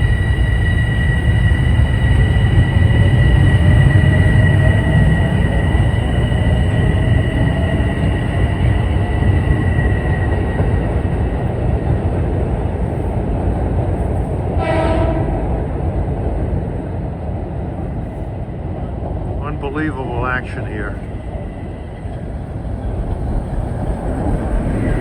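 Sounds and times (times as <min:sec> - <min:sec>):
train passing with rumble: 0:00.0 - 0:25.0
train horn blast: 0:14.6 - 0:15.5.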